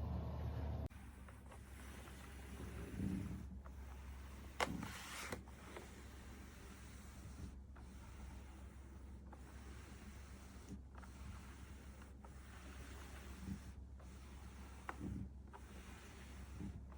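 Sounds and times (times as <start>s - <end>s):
low hum: 0.0s - 1.3s.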